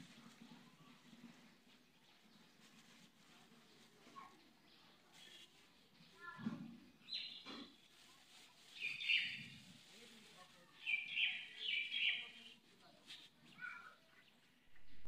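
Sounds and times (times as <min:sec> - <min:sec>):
faint voices: 0:00.0 - 0:15.0
birds chirping: 0:08.8 - 0:09.6, 0:10.7 - 0:12.6.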